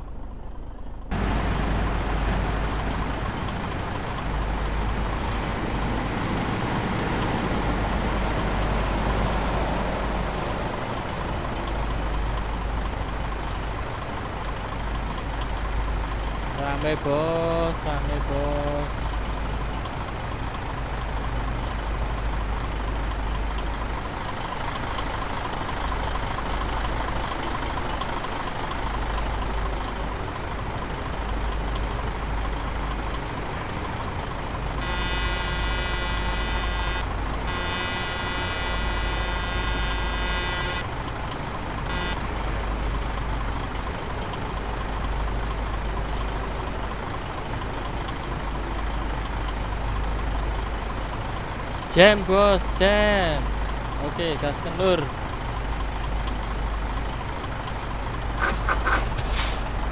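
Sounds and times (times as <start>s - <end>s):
truck engine rumble: 0.0s - 59.9s
truck horn blasts: 34.7s - 40.9s, 41.8s - 42.4s, 58.4s - 59.7s.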